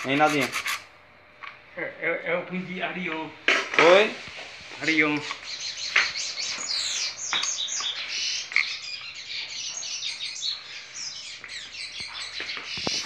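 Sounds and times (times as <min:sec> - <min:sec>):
small birds chirping: 0:04.2 - 0:13.0.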